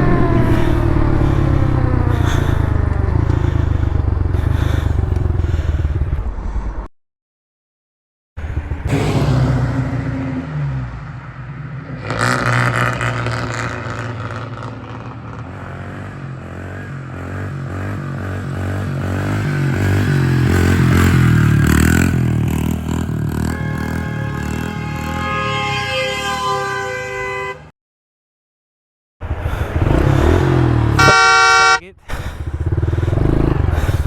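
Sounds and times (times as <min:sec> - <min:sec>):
small motorbike engine revving: 0:00.0 - 0:06.1, 0:29.4 - 0:34.0.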